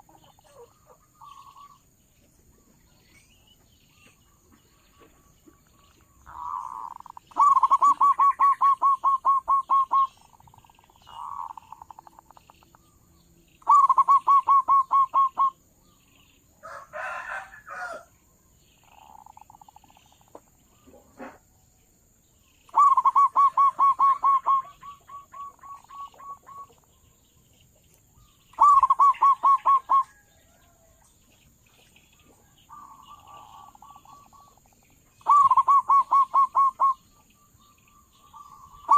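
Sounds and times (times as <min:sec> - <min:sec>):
dove cooing: 0:00.0 - 0:01.8, 0:06.2 - 0:12.7, 0:13.6 - 0:15.6, 0:22.7 - 0:26.9, 0:28.6 - 0:30.2, 0:32.7 - 0:34.6, 0:35.2 - 0:37.0.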